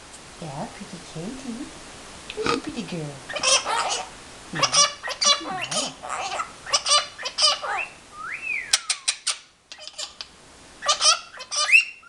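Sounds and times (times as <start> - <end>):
macaws chattering: 2.3 - 8.0, 8.7 - 12.0
macaw whistle: 7.8 - 9.3.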